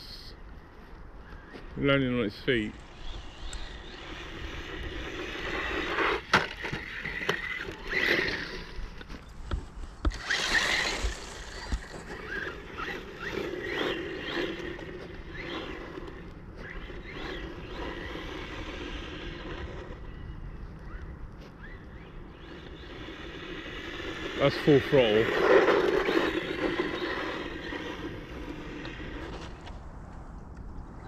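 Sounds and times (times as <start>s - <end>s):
electric motor whining: 2.7s - 9.0s, 10.0s - 20.3s, 21.6s - 29.7s.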